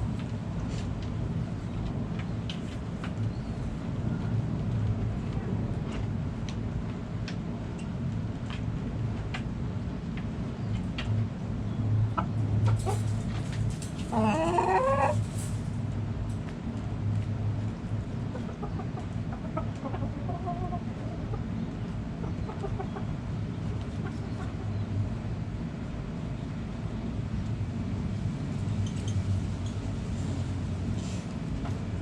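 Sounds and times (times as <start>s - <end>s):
chickens clucking: 12.0s - 15.8s, 17.8s - 25.2s
chicken rising call: 14.1s - 15.2s.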